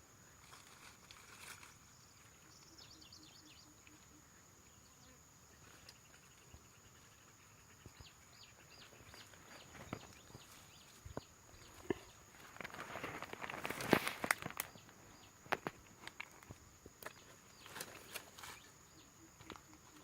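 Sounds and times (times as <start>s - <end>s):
insect high-pitched drone: 0.0s - 12.3s, 13.6s - 20.0s.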